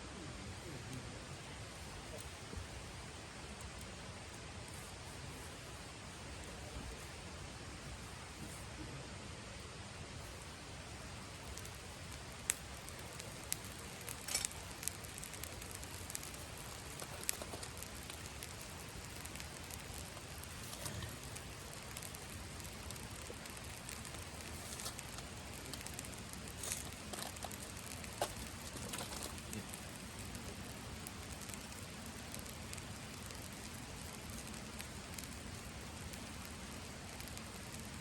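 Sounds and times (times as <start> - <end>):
campfire crackling and popping: 0.2 - 8.8, 9.6 - 38.0.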